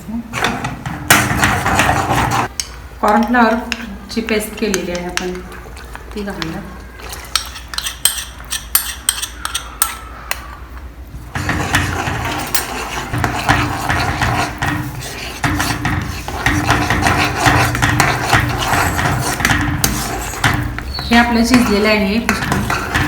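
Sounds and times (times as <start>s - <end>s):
spoon scraping and clattering in pan: 3.2s - 10.1s, 11.4s - 23.0s
metal spoon clinking against pan: 7.2s - 10.1s.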